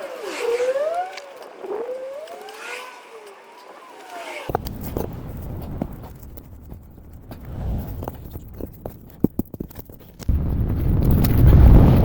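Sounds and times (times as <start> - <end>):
sharp clicks and knocks: 4.5 - 11.5
wind rumbling on microphone: 4.5 - 12.0.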